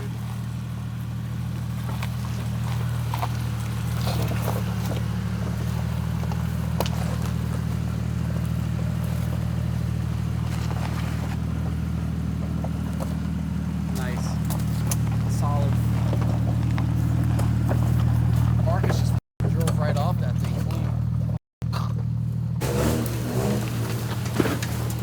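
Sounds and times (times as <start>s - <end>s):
car engine running under load: 0.0s - 25.0s.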